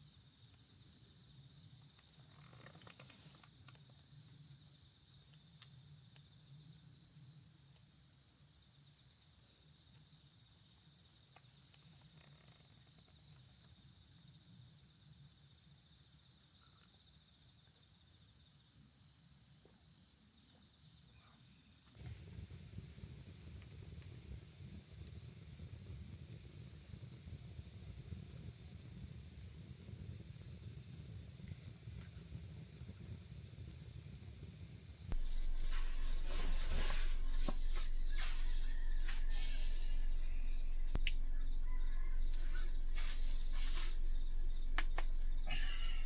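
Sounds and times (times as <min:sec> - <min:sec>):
crickets chirping: 0:00.0 - 0:22.0, 0:34.6 - 0:46.0
low background rumble: 0:35.1 - 0:46.0.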